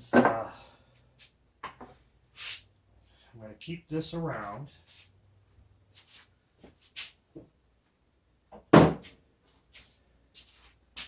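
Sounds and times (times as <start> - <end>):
loud thunk: 8.7 - 9.1.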